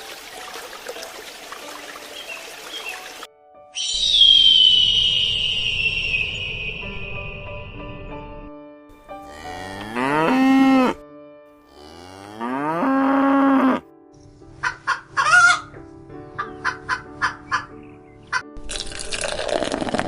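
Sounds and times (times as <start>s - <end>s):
cow mooing: 9.2s - 11.0s, 11.7s - 13.9s
fowl clucking: 14.6s - 15.8s, 16.4s - 17.7s.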